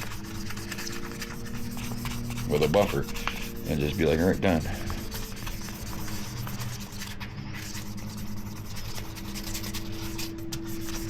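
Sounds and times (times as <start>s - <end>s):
sandpaper scratching plastic: 0.0s - 11.0s.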